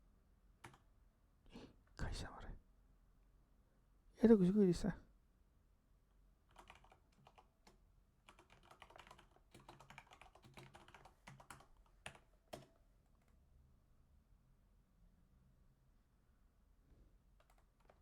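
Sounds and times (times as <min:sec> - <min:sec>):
typing on computer keyboard: 0:00.6 - 0:00.9, 0:06.5 - 0:13.4, 0:17.4 - 0:18.0.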